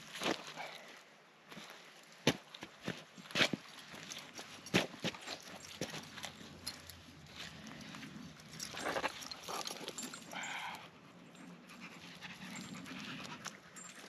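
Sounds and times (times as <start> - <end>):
dog panting: 8.6 - 14.0.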